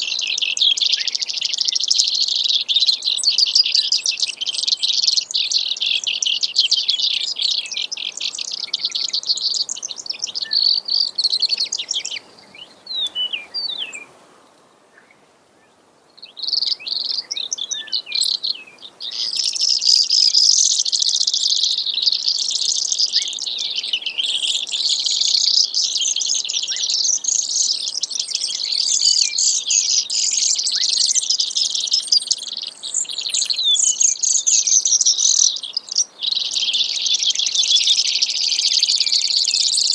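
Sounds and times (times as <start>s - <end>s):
sparrow singing high trills: 0.0s - 14.1s, 16.2s - 39.9s.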